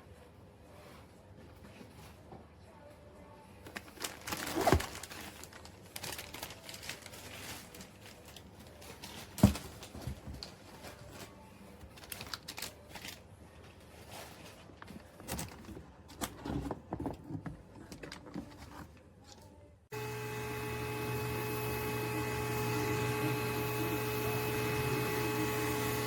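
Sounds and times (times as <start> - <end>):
rustling and clattering handling: 3.7 - 19.5.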